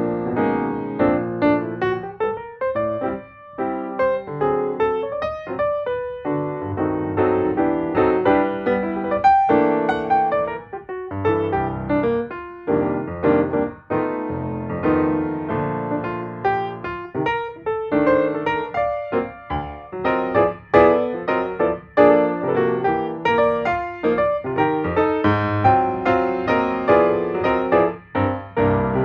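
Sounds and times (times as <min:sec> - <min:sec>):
piano music: 0:00.0 - 0:29.0.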